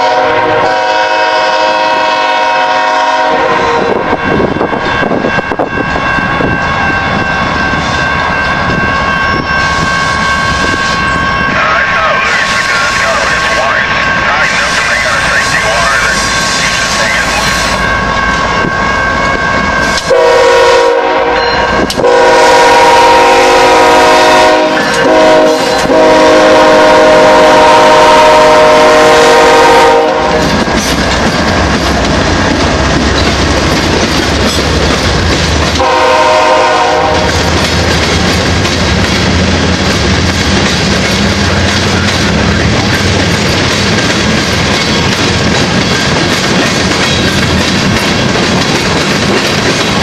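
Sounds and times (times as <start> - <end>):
locomotive air horn blasts: 0.0 - 4.1, 19.8 - 30.5, 35.8 - 37.4
freight cars rumbling: 3.5 - 20.1, 30.1 - 35.9, 37.2 - 50.0
wheels clattering on rails: 30.4 - 35.9, 37.2 - 50.0.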